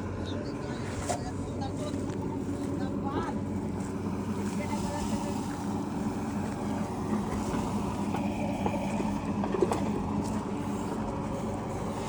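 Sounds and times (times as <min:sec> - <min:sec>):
diesel machinery engine running: 0:00.0 - 0:12.0.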